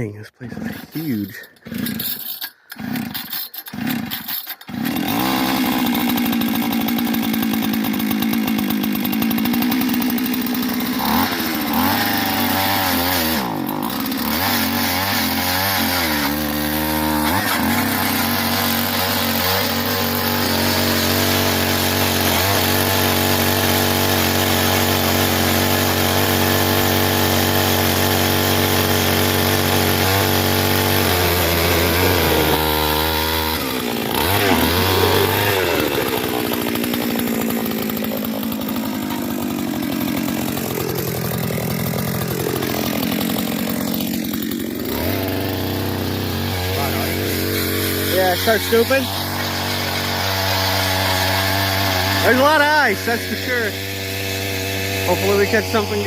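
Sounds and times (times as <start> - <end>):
ice auger engine revving: 0.4 - 56.0.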